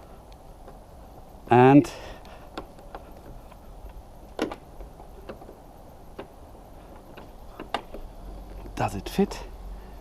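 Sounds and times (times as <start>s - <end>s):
small clicks and knocks of handling: 2.2s - 9.5s.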